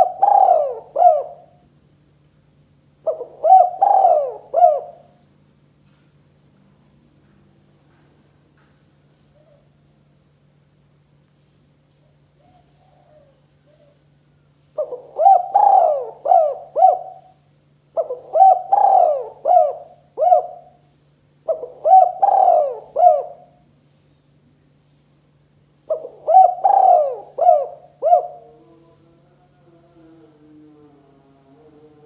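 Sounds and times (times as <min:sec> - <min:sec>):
dove cooing: 0:00.0 - 0:01.6, 0:03.0 - 0:05.2, 0:12.4 - 0:14.0, 0:14.8 - 0:20.8, 0:21.4 - 0:23.6, 0:25.9 - 0:28.9.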